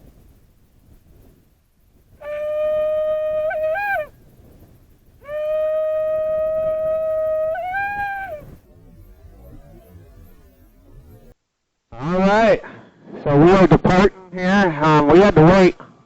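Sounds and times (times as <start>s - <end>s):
shofar blasts: 2.2s - 4.2s, 5.2s - 10.3s.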